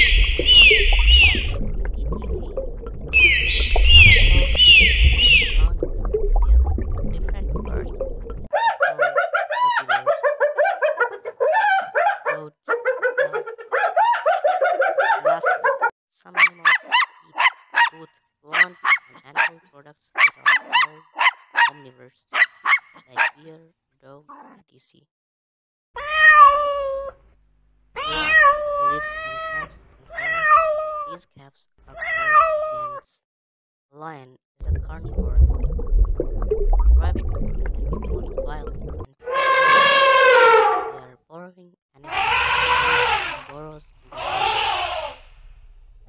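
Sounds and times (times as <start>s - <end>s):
cat meowing: 26.0s - 27.2s, 28.0s - 31.1s, 31.9s - 33.0s.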